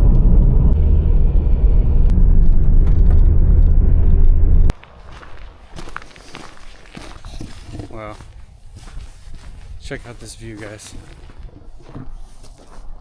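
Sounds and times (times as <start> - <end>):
loud low rumble: 0.0 - 4.7.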